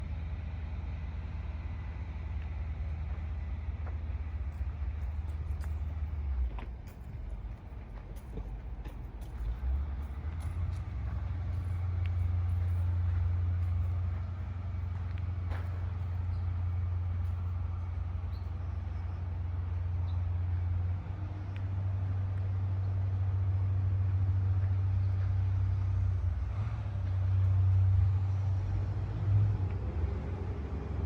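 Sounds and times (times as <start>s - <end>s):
drilling rig engine humming: 0.0s - 31.0s.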